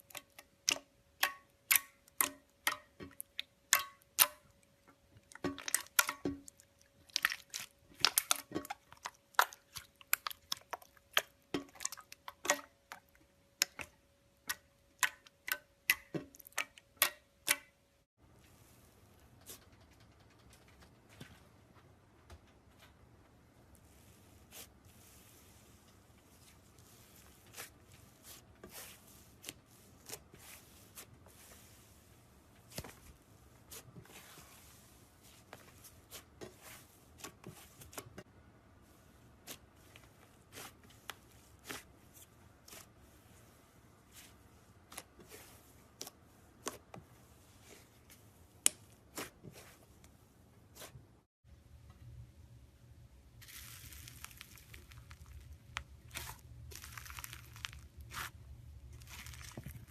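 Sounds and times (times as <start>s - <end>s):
slime squeezed by hand: 53.4s - 55.5s.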